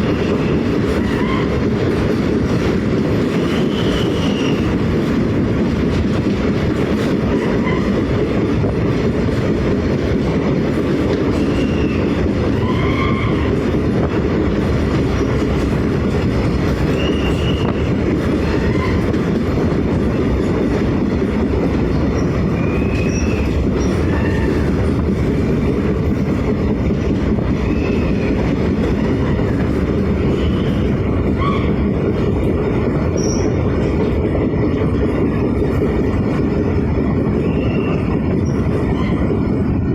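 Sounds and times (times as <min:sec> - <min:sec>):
train rumbling on rails: 0:00.0 - 0:39.9
wheels squealing: 0:16.5 - 0:19.2, 0:22.0 - 0:25.1, 0:27.5 - 0:31.9, 0:33.1 - 0:33.7, 0:37.3 - 0:39.4.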